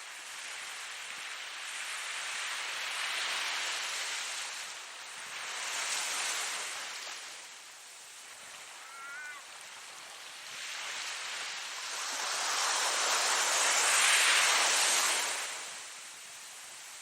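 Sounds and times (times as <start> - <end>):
ocean wave breaking: 8.2 - 15.9
short high wavering call: 8.8 - 9.4.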